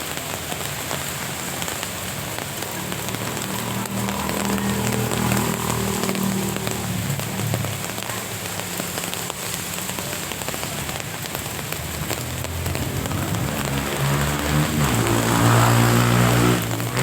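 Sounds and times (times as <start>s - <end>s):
steady rain falling: 0.0s - 17.0s
passing vehicle engine hum: 1.0s - 17.0s.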